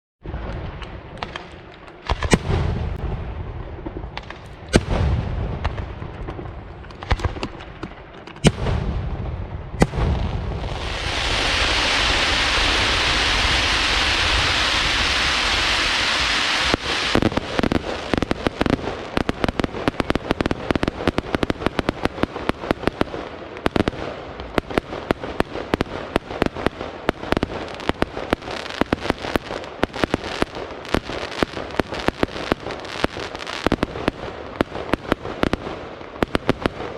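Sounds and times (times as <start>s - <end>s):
fireworks booming bangs: 0.2s - 36.9s
fireworks cracks and pops: 0.3s - 3.0s, 3.6s - 8.9s, 9.8s - 36.9s
loud fireworks hiss: 9.8s - 36.9s.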